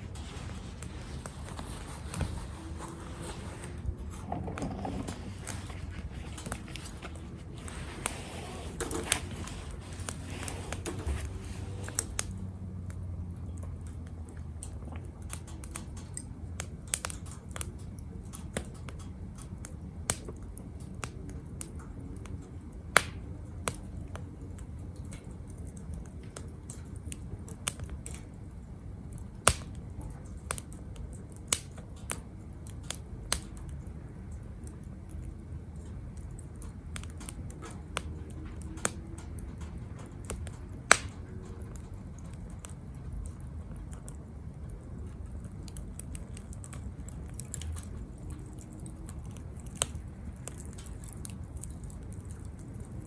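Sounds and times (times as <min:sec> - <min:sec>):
fire hissing: 0:00.0 - 0:12.5
wood fire crackling: 0:00.0 - 0:53.0.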